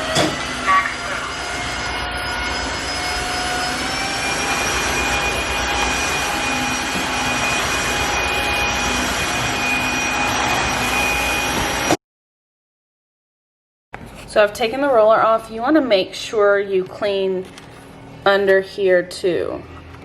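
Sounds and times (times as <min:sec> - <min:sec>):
floor cleaner suction with motor whine: 0:00.0 - 0:12.0.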